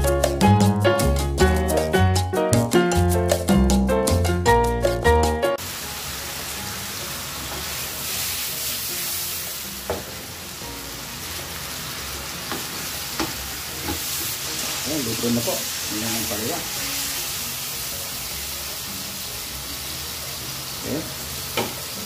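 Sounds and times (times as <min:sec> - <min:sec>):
upbeat background music: 0:00.0 - 0:22.0
vegetables sizzling in oil: 0:05.6 - 0:22.0.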